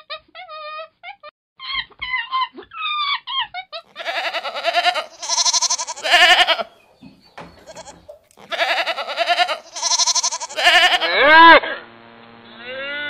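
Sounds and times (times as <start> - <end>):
goats bleating: 3.9 - 6.8, 7.6 - 11.6.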